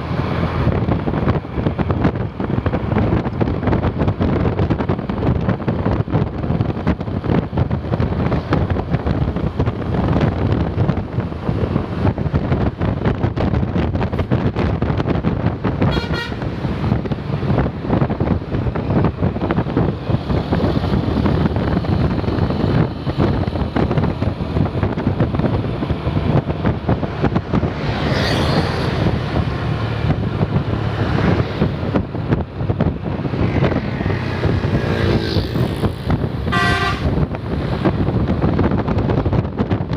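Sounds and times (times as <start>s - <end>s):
bus engine running loudly: 0.0s - 39.9s
wind buffeting microphone: 0.0s - 39.9s
multi-tone bus horn toots: 15.8s - 16.8s, 36.4s - 37.4s.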